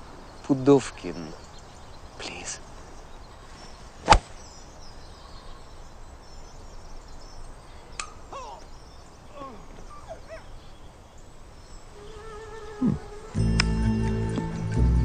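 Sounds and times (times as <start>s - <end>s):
birds chirping: 0.0s - 15.0s
golf club striking ball: 4.0s - 4.5s.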